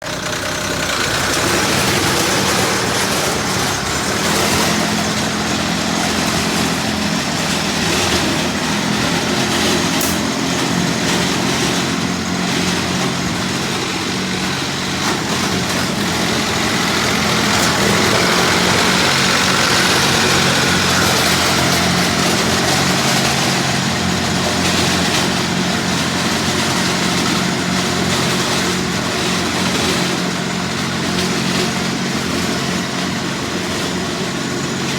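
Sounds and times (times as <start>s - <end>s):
dumper engine humming: 0.0s - 34.9s.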